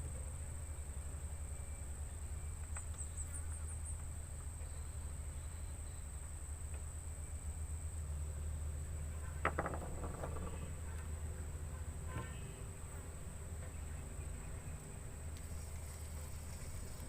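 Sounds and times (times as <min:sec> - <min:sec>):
short rattle: 0:09.4 - 0:10.7.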